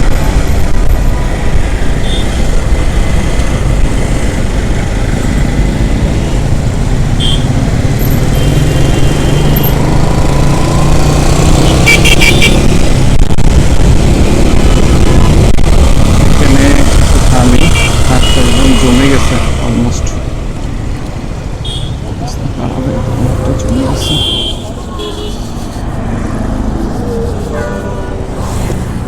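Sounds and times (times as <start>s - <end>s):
wind rushing over microphone: 0.0s - 8.0s, 12.4s - 18.2s
vehicle horn tooting: 7.2s - 7.5s, 11.7s - 12.7s, 22.8s - 25.5s.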